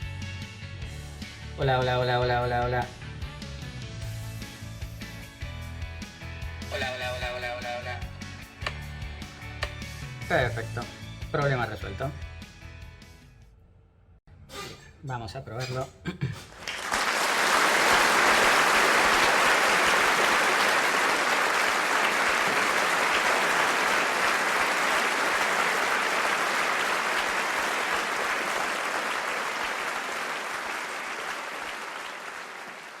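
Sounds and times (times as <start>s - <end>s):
dense clapping: 16.6s - 33.0s.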